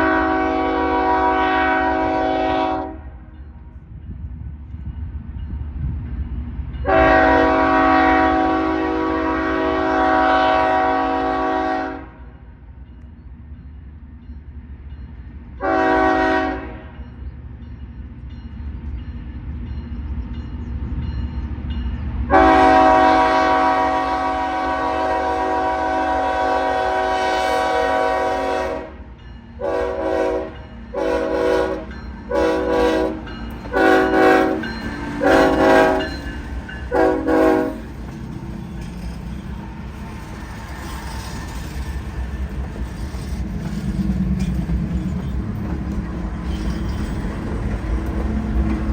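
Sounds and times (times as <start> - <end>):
locomotive air horn blasts: 0.0 - 3.2, 6.8 - 12.3, 15.6 - 17.0, 22.3 - 36.2, 36.9 - 37.9
train rumble: 0.0 - 48.9.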